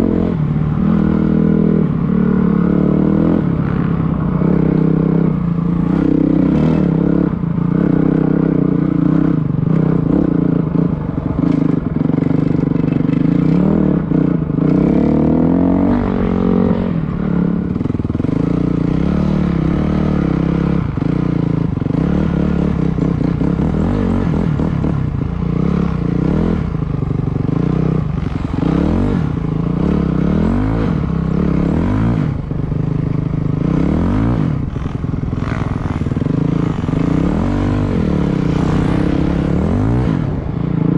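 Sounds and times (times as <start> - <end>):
dirt bike engine revving: 33.6 - 40.9.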